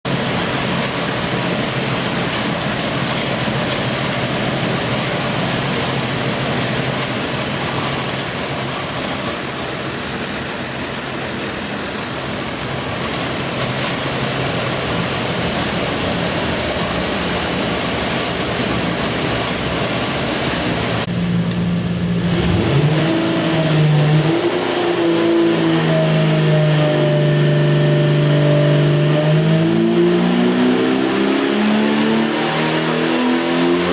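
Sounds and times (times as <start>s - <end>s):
engine running and revving: 22.2s - 33.9s.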